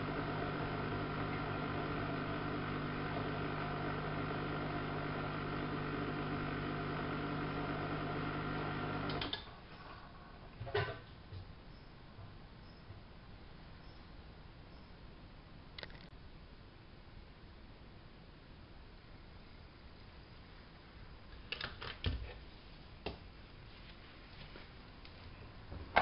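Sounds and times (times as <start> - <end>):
washing machine humming: 0.0 - 10.3.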